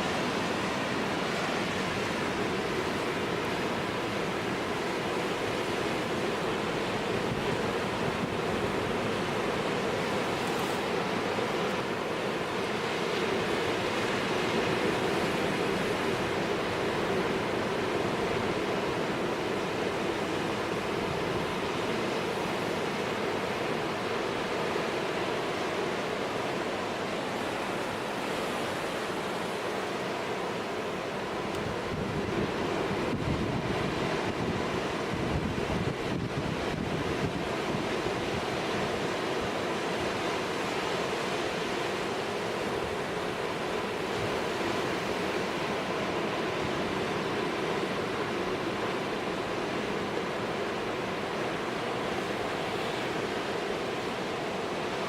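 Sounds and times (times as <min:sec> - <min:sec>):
storm surf rushing against rocks: 0:00.0 - 0:55.0
wind buffeting microphone: 0:31.4 - 0:38.6.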